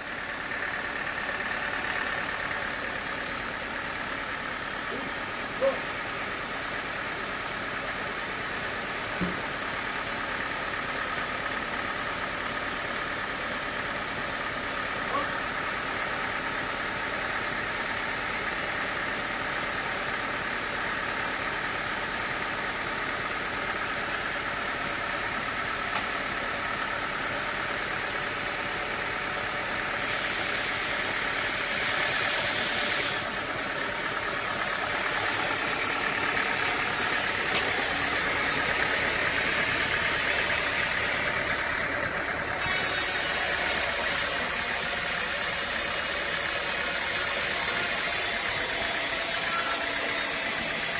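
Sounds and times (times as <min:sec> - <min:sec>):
sawmill machinery humming: 0:00.0 - 0:50.9
loud hissing noise: 0:42.5 - 0:50.9.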